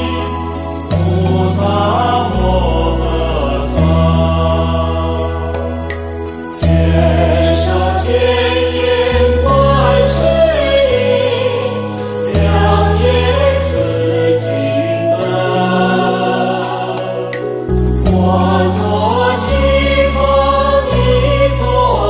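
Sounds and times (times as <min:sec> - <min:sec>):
sustained low chords: 0:00.0 - 0:22.0
voices singing devotional song: 0:00.0 - 0:22.0.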